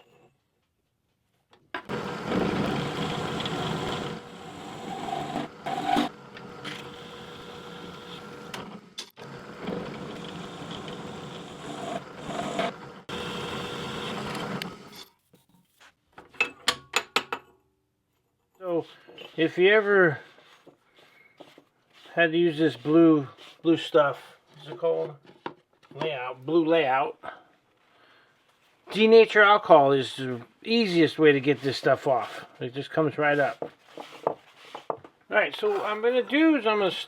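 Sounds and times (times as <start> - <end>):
electric drill boring steel: 1.9 - 15.0.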